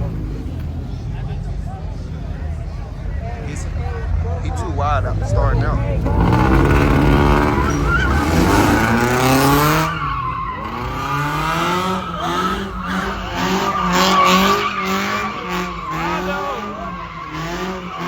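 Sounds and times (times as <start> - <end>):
car engine revving hard: 5.0 - 18.0
tyres squealing: 6.0 - 18.0.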